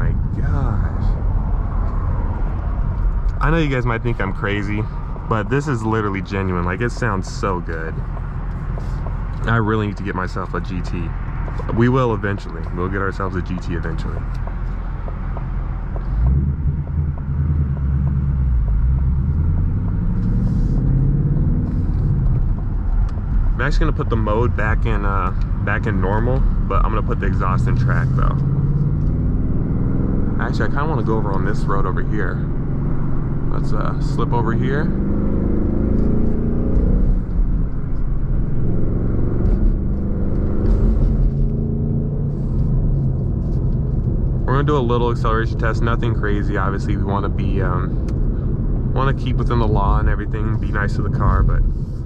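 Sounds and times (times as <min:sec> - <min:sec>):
car engine rumble from cabin: 0:00.0 - 0:52.0.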